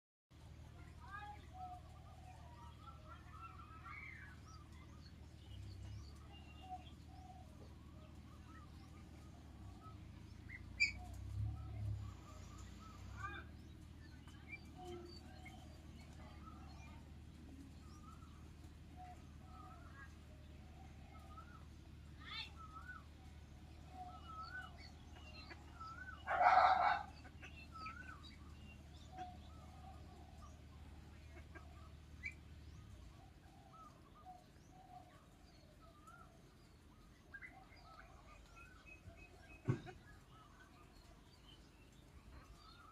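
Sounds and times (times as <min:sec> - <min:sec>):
low rumble: 0:01.4 - 0:26.3
ducklings peeping: 0:05.7 - 0:16.6, 0:22.3 - 0:42.9.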